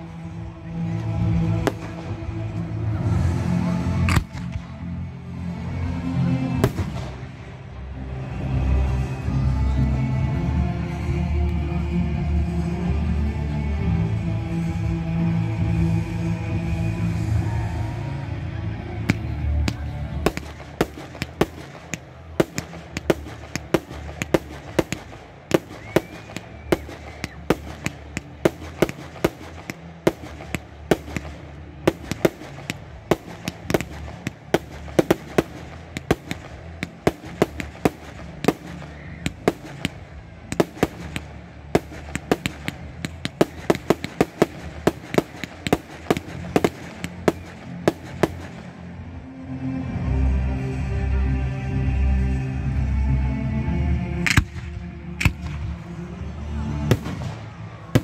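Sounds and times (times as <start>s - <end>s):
fireworks sharp bangs: 1.6s - 2.4s, 6.6s - 7.5s, 19.1s - 48.8s, 56.9s - 58.0s.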